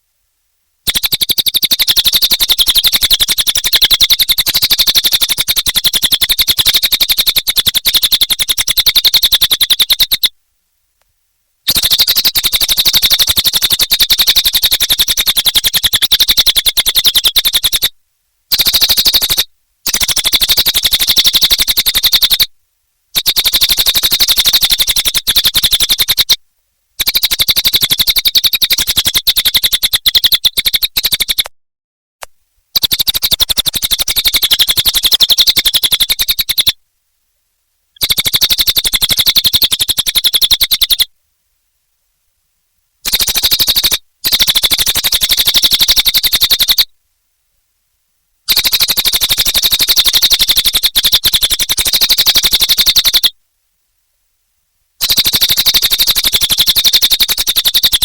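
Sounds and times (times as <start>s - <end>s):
bird clicking chatter song: 0.8s - 10.3s, 11.7s - 22.5s, 23.1s - 26.4s, 27.0s - 31.5s, 32.7s - 36.8s, 38.0s - 41.1s, 43.0s - 46.9s, 48.5s - 53.4s, 55.0s - 58.0s.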